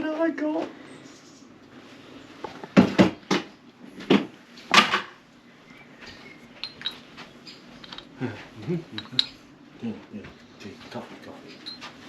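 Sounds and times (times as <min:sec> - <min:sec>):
mugs and crockery knocking: 0:08.7 - 0:09.4.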